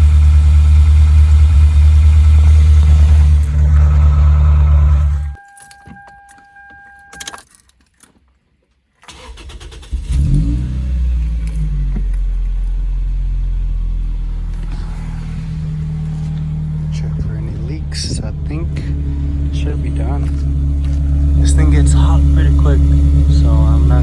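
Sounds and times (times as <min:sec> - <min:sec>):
car engine revving and idling: 0:00.0 - 0:05.4, 0:09.1 - 0:24.0
electronic chime: 0:05.1 - 0:07.4.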